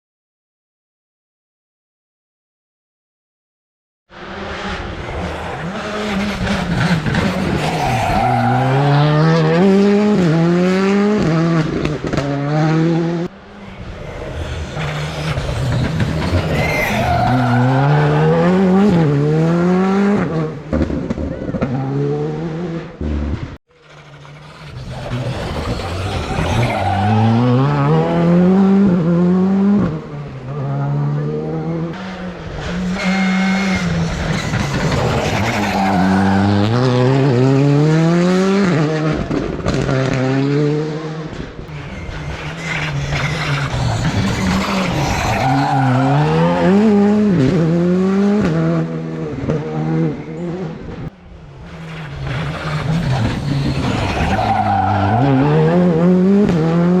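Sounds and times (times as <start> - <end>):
rally car engines revving: 4.1 - 57.0.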